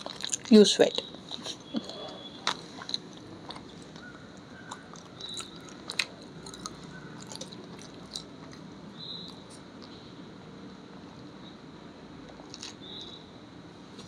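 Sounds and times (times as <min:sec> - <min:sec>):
person chewing: 0:01.3 - 0:10.0, 0:12.3 - 0:13.2
wet mouth clicks and smacks: 0:04.7 - 0:10.0.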